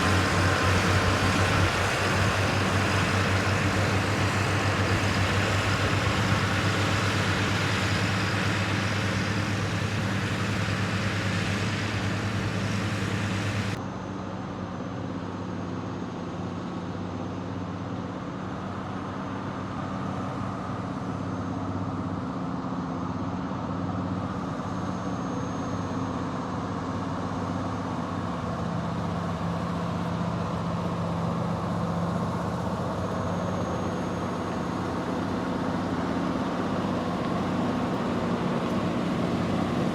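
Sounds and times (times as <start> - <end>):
hiss: 0.0 - 13.8
heavy truck engine running: 0.0 - 39.9.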